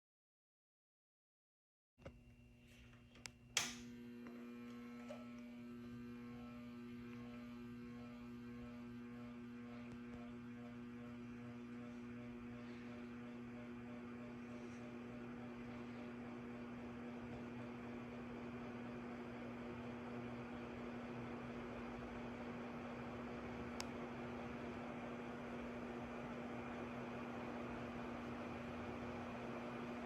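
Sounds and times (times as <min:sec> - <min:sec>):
fan motor humming: 0:02.0 - 0:30.0
ceiling fan switch clicks: 0:03.1 - 0:04.0.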